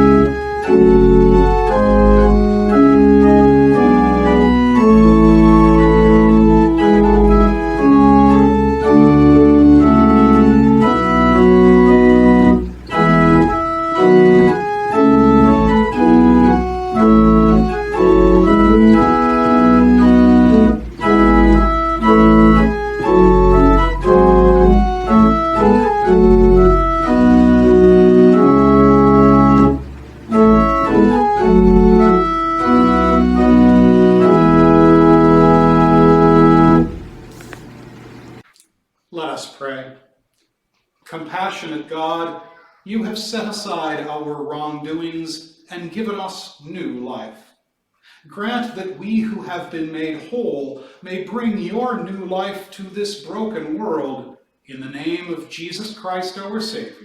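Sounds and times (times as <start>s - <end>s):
deep bass: 0.0s - 37.4s
organ playing held chords: 0.0s - 38.4s.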